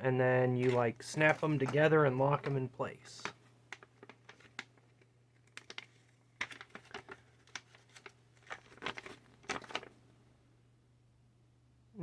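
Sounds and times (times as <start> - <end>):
faint steady low hum: 0.0 - 12.0
packaging crinkling: 0.6 - 10.0.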